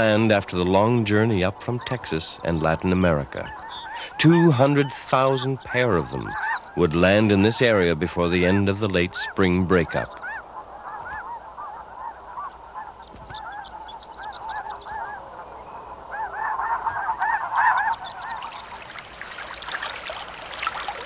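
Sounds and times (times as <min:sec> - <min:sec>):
geese honking: 0:00.0 - 0:21.0.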